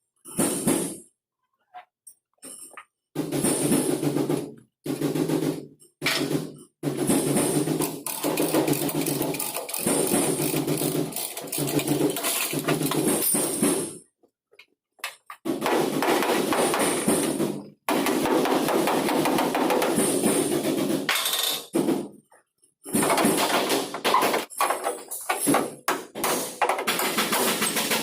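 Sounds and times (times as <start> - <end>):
hammering on sheet metal: 3.2 - 14.0, 15.4 - 22.1, 25.4 - 28.0.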